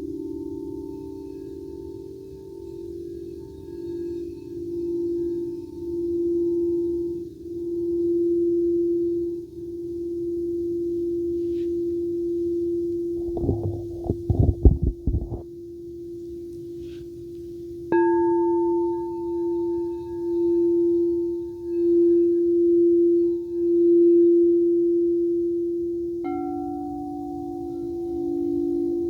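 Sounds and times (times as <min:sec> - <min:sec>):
singing bowls ringing: 0:00.1 - 0:13.8, 0:18.0 - 0:29.0
soft knocks: 0:13.2 - 0:15.4.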